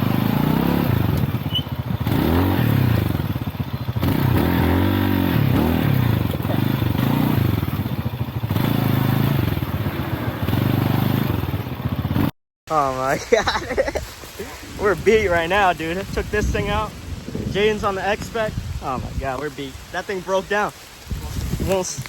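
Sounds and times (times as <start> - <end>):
motorcycle clattering over rough ground: 0.0 - 12.3
motorcycle engine revving: 0.0 - 12.4.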